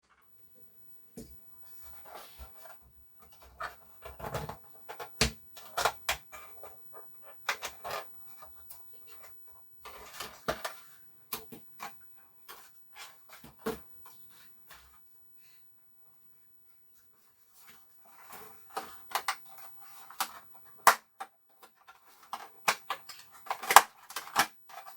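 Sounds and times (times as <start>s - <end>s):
plastic parts clicking and scraping: 1.9s - 13.8s, 18.1s - 24.9s.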